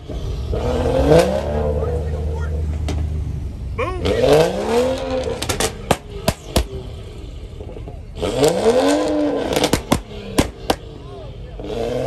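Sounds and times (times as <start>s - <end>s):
car engine revving: 0.0s - 12.0s
sharp cracks: 5.0s - 6.9s, 9.0s - 10.9s.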